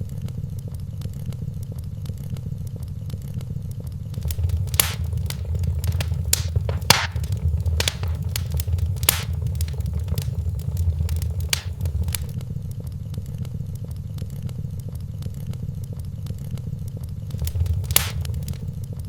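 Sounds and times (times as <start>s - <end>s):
wood fire crackling: 4.2s - 12.4s, 17.3s - 18.7s.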